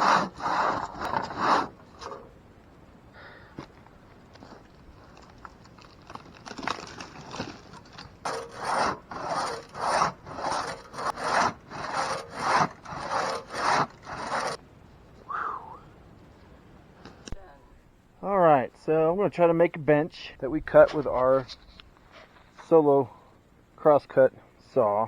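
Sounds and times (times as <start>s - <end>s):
crosscut saw cutting log: 0.0s - 2.3s, 8.2s - 14.6s.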